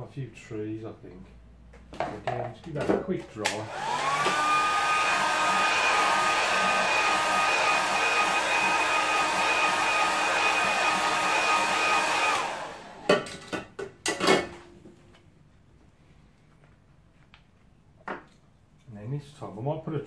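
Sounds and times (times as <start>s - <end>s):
hair dryer blowing: 3.4s - 13.2s.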